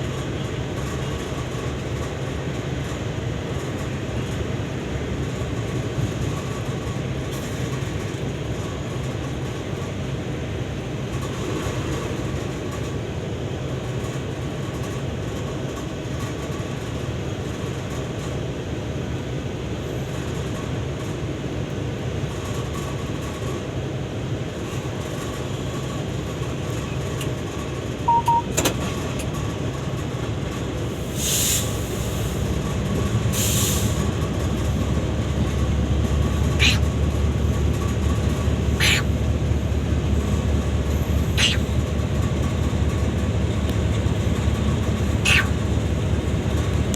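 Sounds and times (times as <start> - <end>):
train rumbling: 0.0 - 46.9
short double beep: 28.1 - 28.6.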